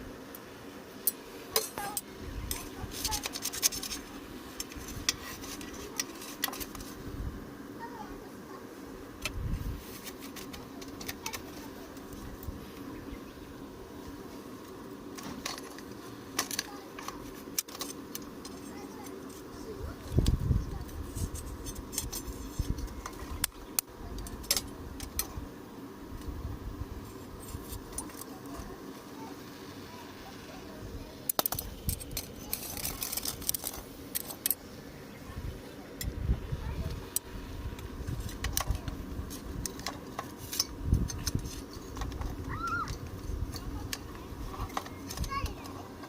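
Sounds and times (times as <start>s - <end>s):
steady low hum: 0.0s - 46.0s
small metal objects clinking: 31.3s - 34.6s.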